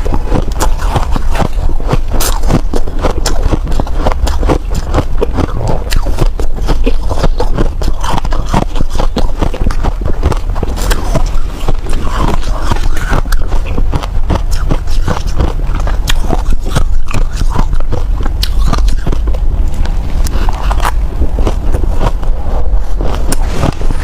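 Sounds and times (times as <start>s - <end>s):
ice crunching being chewed: 0.0s - 24.0s.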